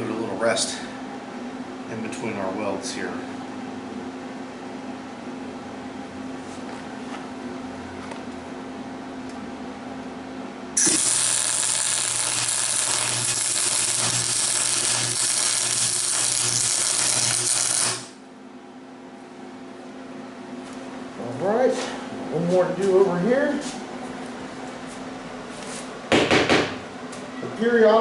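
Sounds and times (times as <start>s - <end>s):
welding arc: 10.8s - 18.2s.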